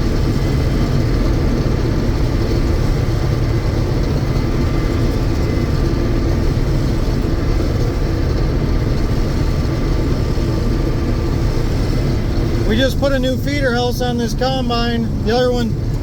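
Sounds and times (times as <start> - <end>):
combine harvester engine drone: 0.0 - 16.0.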